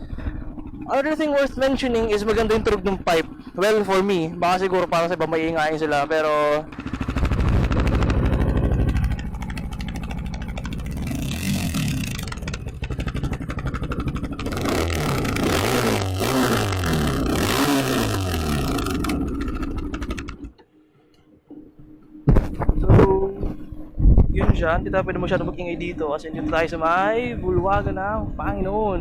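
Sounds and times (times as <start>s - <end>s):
motorcycle engine revving: 0.0s - 20.6s.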